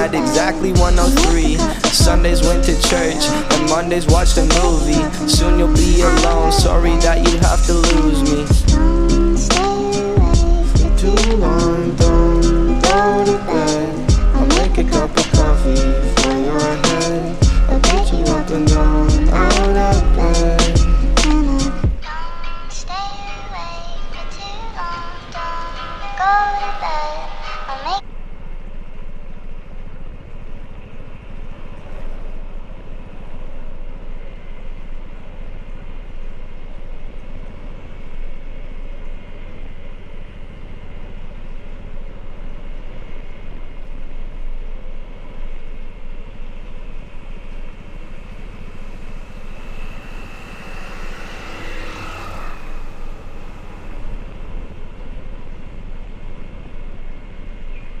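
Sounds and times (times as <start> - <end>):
motorcycle engine rumble: 0.0 - 22.2
wind noise: 28.1 - 58.0.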